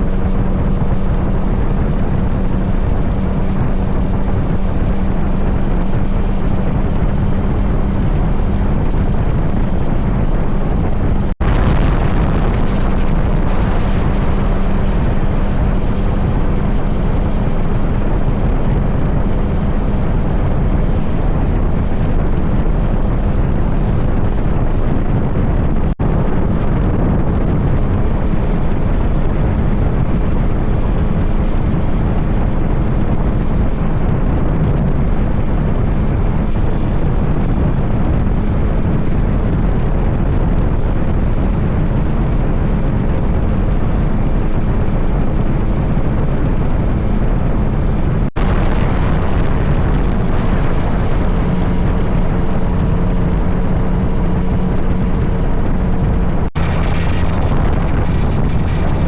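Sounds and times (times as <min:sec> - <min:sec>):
wind noise on microphone: 0:00.0 - 0:59.0
motorcycle engine running: 0:56.6 - 0:59.0.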